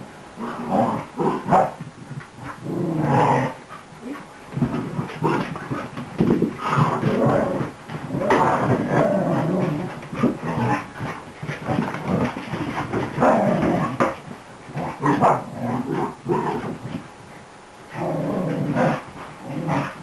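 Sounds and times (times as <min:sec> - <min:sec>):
puppy growling and barking: 0:00.4 - 0:01.8, 0:02.4 - 0:03.6, 0:06.6 - 0:11.0, 0:13.2 - 0:16.8, 0:18.0 - 0:20.0.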